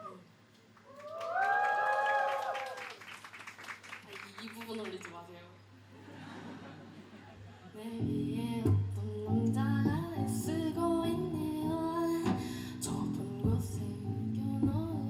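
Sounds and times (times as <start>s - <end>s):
person singing: 7.8s - 15.0s
guitar: 8.0s - 15.0s.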